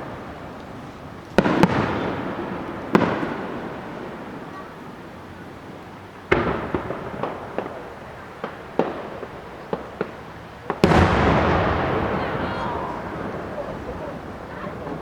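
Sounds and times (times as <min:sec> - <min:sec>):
small sharp firework bangs: 0:00.0 - 0:15.0
firework shell burst echoing: 0:06.3 - 0:15.0.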